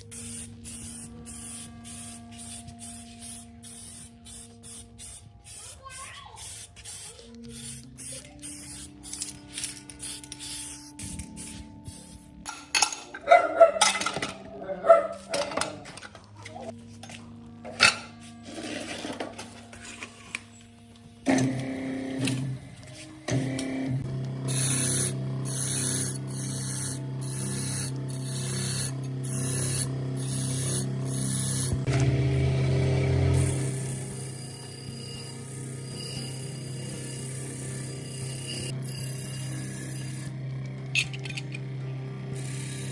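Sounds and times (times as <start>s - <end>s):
aerosol spray can hissing: 0.0s - 12.4s
background music: 0.0s - 15.2s
low hum: 7.3s - 14.9s.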